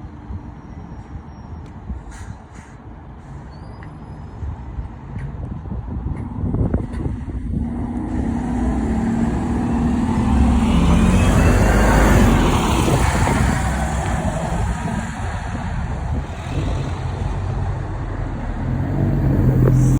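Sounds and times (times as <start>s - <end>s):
bus engine accelerating: 0.0s - 19.9s.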